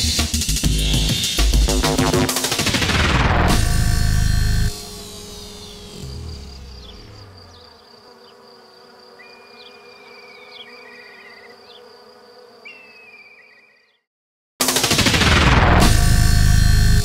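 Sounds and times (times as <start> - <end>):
music: 0.0 - 7.4, 15.6 - 17.0
steady high insect buzz: 3.5 - 14.1
insect chirps: 4.6 - 14.0
rapid insect trills: 4.7 - 14.0.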